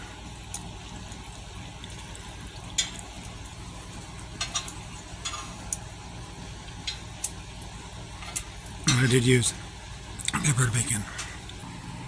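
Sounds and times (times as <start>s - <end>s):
bacon sizzling in a pan: 0.0s - 8.8s
utensil clinking on metal: 4.4s - 5.8s.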